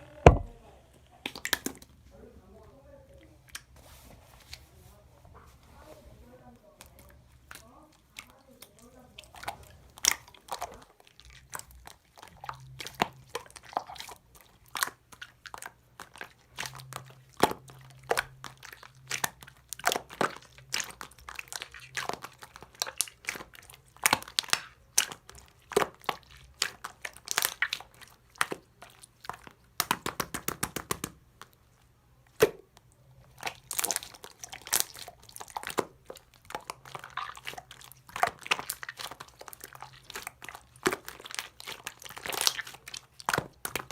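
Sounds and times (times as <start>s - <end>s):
slime crackling and popping: 8.6s - 31.6s, 32.3s - 43.9s.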